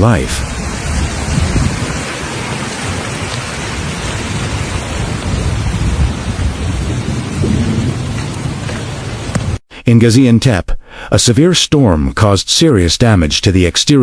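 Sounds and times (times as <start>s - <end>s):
heavy rain pouring: 0.0s - 9.6s
low rumble: 0.0s - 9.6s.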